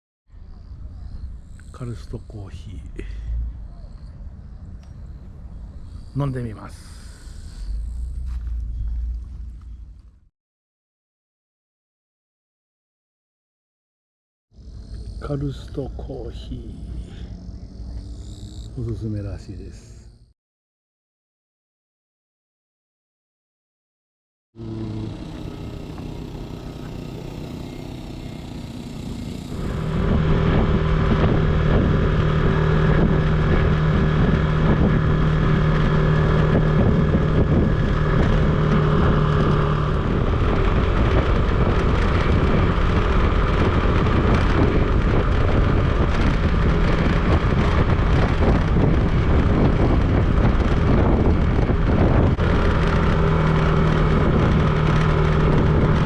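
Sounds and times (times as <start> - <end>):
motorcycle engine running: 3.0 - 10.3, 14.6 - 19.1, 24.6 - 56.0
wind noise: 29.5 - 56.0.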